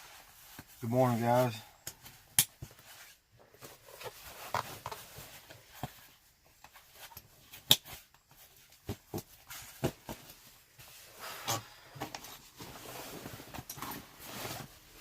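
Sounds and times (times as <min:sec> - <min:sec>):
rustling of handled gear: 0:00.0 - 0:15.0.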